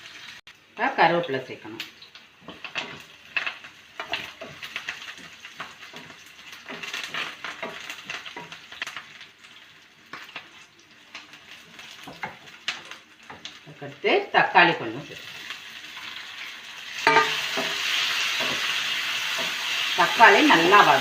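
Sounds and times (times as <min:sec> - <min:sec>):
onions sizzling in hot oil: 0:00.0 - 0:21.0
spoon scraping and clinking on pan: 0:17.0 - 0:18.6.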